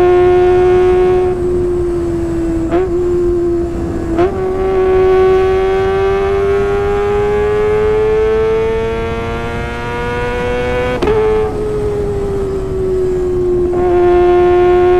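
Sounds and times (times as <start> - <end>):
motorcycle engine high revs: 0.0 - 14.9.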